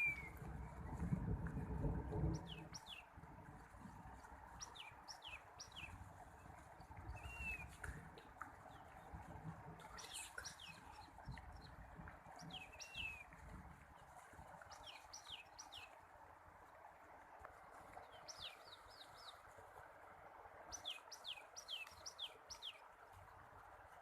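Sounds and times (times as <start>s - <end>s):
small birds chirping: 9.8s - 11.8s, 12.4s - 13.3s, 14.6s - 16.0s, 20.7s - 22.8s.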